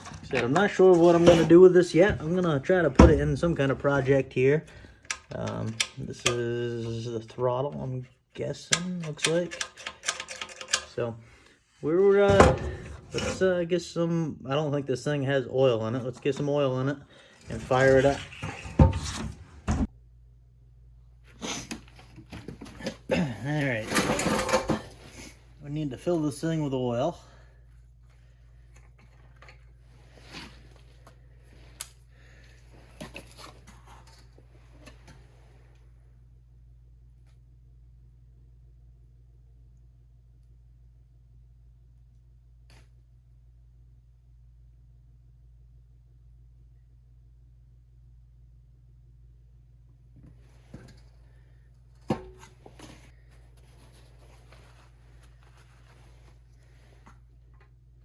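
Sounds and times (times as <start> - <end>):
handling knocks and rustles: 0.0 - 6.5, 12.1 - 13.5, 21.6 - 25.4, 50.2 - 57.8
faint low hum: 0.0 - 58.0.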